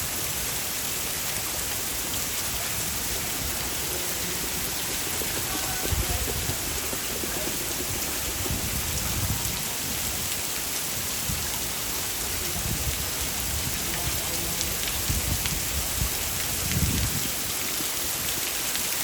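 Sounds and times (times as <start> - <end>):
heavy rain: 0.0 - 19.0
low rumbles: 2.0 - 10.4.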